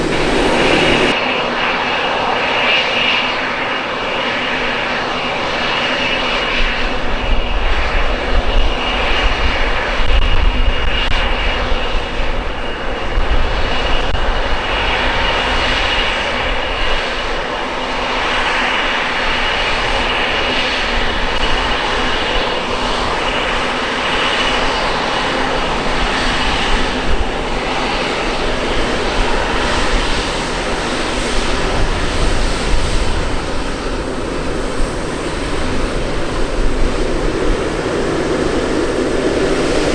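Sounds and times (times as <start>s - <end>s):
jet engines roaring: 0.0s - 2.5s, 10.8s - 39.9s.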